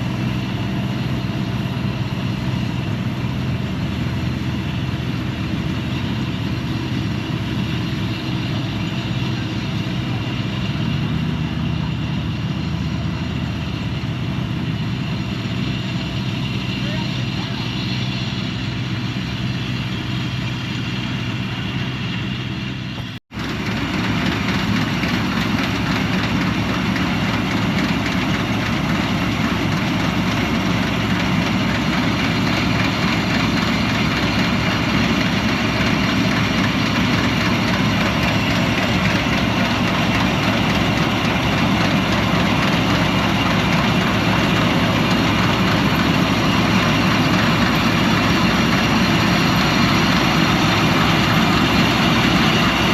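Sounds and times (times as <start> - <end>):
combine harvester running: 0.0 - 52.9.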